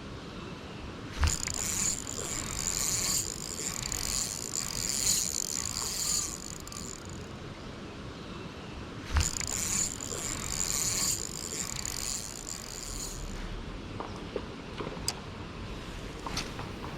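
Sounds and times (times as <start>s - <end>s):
fishing reel gear whir: 1.2s - 7.3s, 9.1s - 13.6s.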